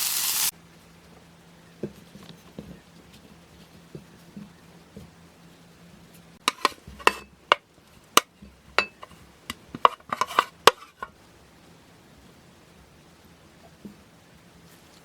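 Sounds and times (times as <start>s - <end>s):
utensils clinking against dishes: 8.8s - 9.2s.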